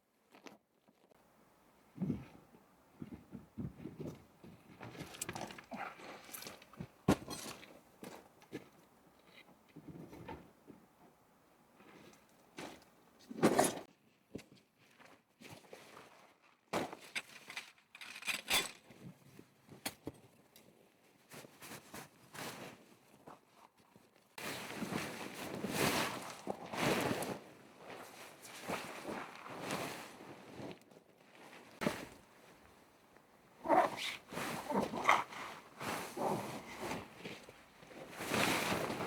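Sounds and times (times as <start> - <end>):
rustling handling noises: 11.8 - 39.0.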